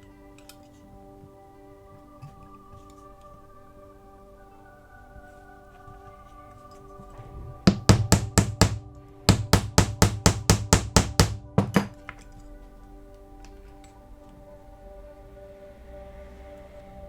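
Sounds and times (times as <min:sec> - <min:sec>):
soft background music: 0:00.0 - 0:17.0
hammer tapping metal: 0:07.7 - 0:12.2.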